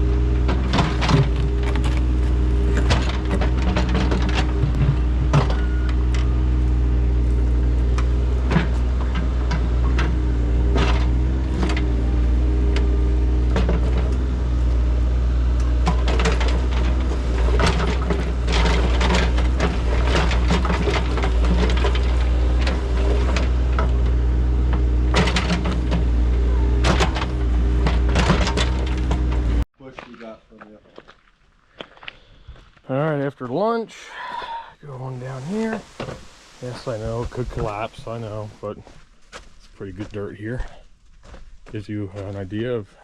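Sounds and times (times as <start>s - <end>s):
digging machine engine running: 0.0s - 29.6s
clanks knocks and scrapes: 0.4s - 6.3s, 7.9s - 14.3s, 15.7s - 29.6s, 35.3s - 38.2s.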